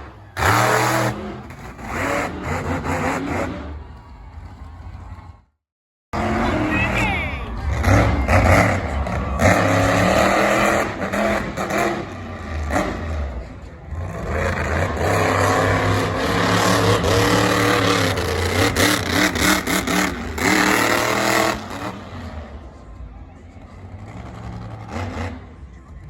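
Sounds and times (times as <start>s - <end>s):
monster truck engine revving: 0.0s - 5.5s, 6.2s - 26.0s.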